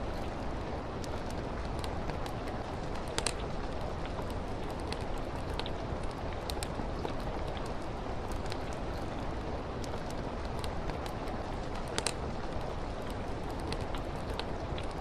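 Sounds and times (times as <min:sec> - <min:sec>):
rain on window glass: 0:00.0 - 0:15.0
wood fire crackling: 0:00.0 - 0:15.0
sharp pops from fire: 0:11.8 - 0:12.2.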